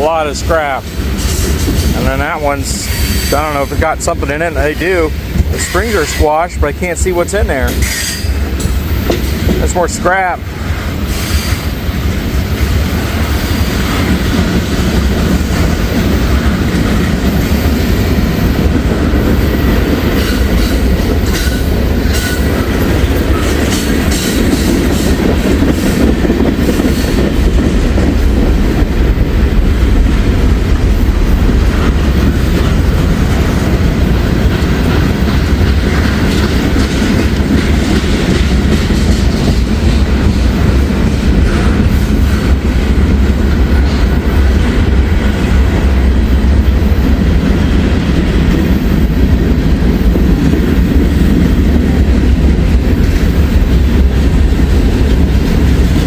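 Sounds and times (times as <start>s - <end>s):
wheels clacking over rail joints: 0.0s - 6.4s, 10.6s - 56.0s
freight train rumbling past: 0.0s - 56.0s.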